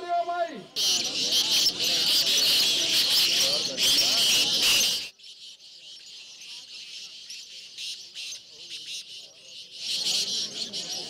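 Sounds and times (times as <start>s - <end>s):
birds chirping: 0.0s - 11.0s
crowd voices: 0.0s - 11.0s.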